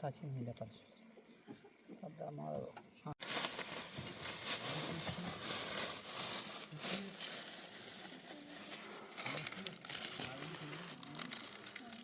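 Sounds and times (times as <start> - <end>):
material rustling and crinkling: 3.2 - 12.0.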